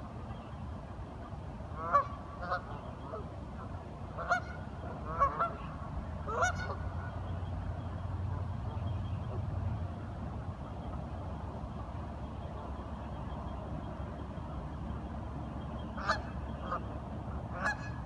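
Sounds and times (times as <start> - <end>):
ducks quacking: 1.8 - 7.2, 16.0 - 18.0.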